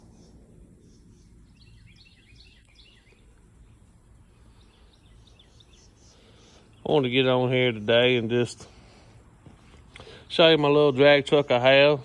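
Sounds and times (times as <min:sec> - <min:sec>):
faint bird chirps: 0:00.0 - 0:07.6
low background rumble: 0:00.0 - 0:12.0.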